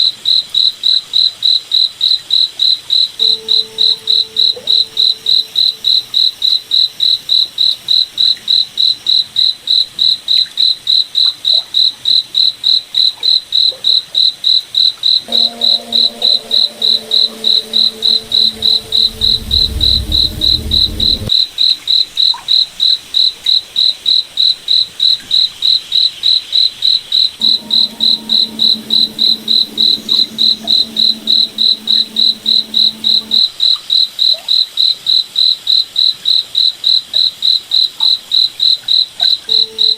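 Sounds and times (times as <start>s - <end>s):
low multi-tone hum: 15.3s - 21.3s, 27.4s - 33.5s
deep rumble: 16.7s - 21.3s, 27.4s - 33.4s
crickets chirping: 27.4s - 33.5s.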